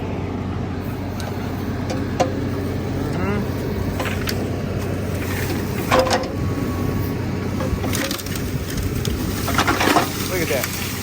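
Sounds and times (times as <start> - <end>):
engine running: 0.0 - 11.0
wood cracking and splintering: 7.6 - 11.0.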